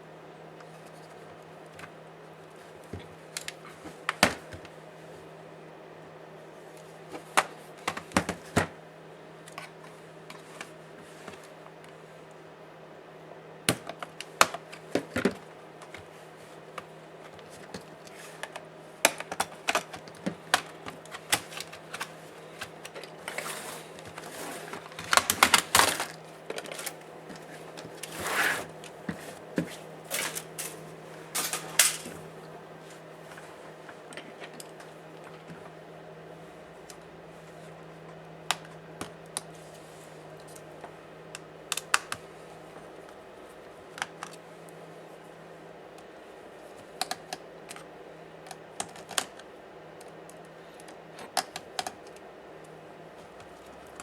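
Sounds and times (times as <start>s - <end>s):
hand tools and plastic parts clattering: 17.2s - 32.2s.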